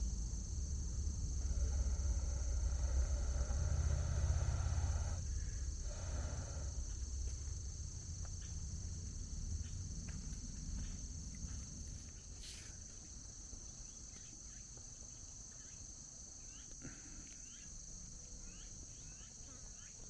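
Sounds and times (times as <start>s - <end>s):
low rumble: 0.0s - 12.0s
insects chirping: 0.0s - 20.0s.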